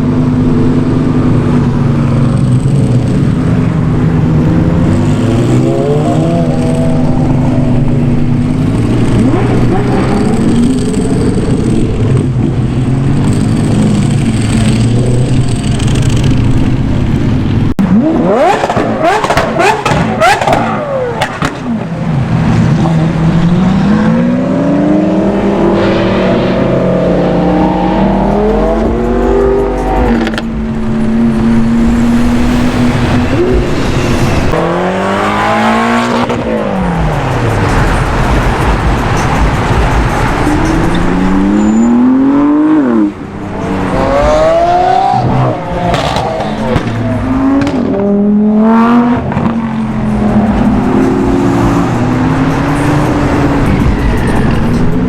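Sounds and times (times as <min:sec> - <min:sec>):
car engines revving and accelerating: 0:00.0 - 0:55.0.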